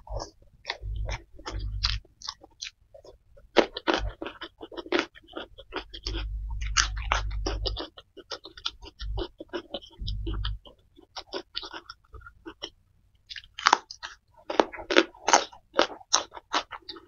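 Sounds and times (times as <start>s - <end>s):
close chewing with mouth clicks: 0.0s - 17.0s
low rumble: 0.7s - 2.1s, 5.8s - 7.9s, 8.8s - 10.7s.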